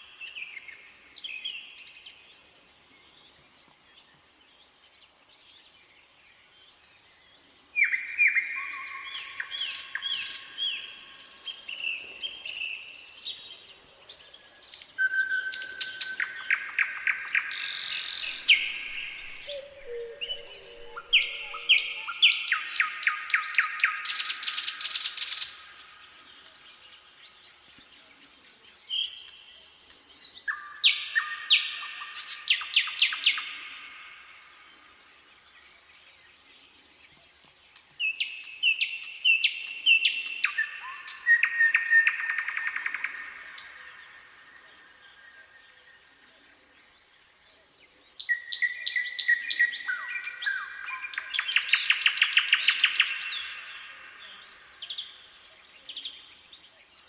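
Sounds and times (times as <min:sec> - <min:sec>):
nightingale singing: 0:06.0 - 0:57.0.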